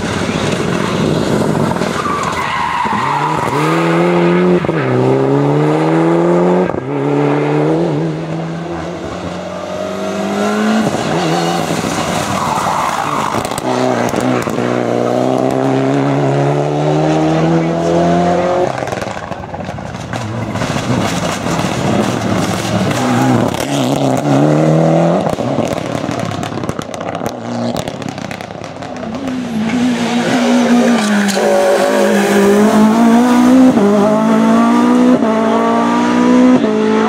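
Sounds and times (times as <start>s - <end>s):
rally car engine revving: 0.0s - 37.0s
tyre and road noise: 0.0s - 37.0s.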